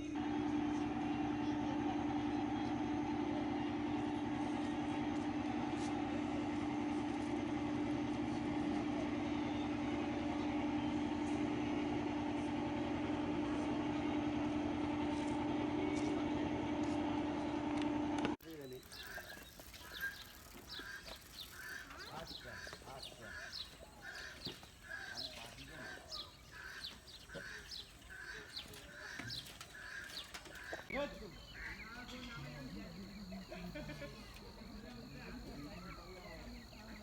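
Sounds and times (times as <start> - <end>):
boat engine drone: 0.0 - 37.0.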